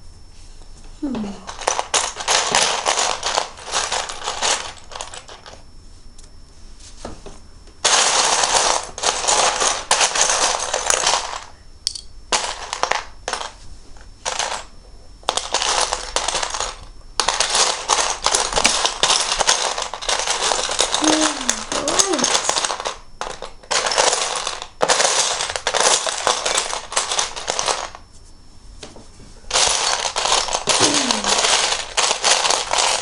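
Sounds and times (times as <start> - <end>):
plastic bricks rattling: 15.3 - 27.9, 29.5 - 33.0.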